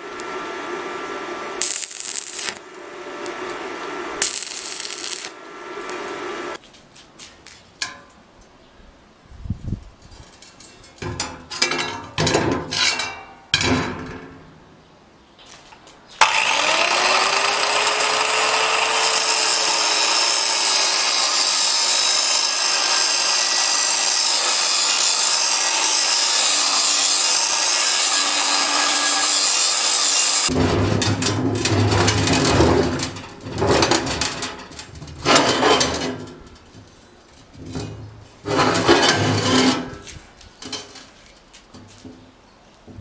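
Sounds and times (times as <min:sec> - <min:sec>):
power tool cutting: 0:16.2 - 0:30.6
scraping and knocking: 0:30.5 - 0:42.3.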